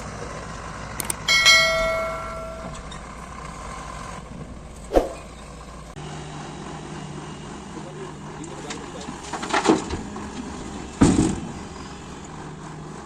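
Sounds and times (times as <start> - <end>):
engine running: 0.0 - 13.0
loud metallic clang: 1.3 - 3.1.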